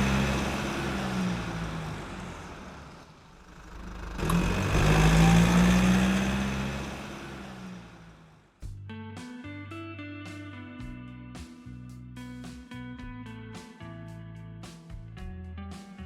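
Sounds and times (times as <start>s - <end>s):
car engine running: 0.0s - 8.8s.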